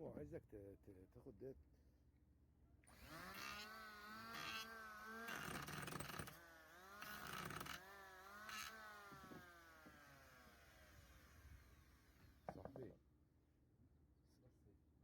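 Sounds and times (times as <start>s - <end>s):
small motor buzzing hum: 2.9s - 12.4s.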